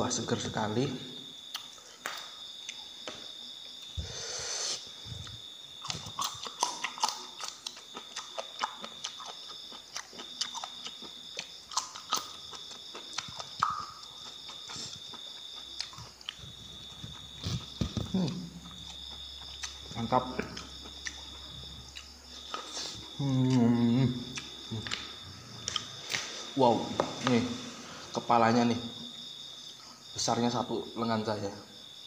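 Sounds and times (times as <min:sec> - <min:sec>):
high insect trill: 0:00.0 - 0:32.0
chewing crisp food: 0:05.7 - 0:26.6.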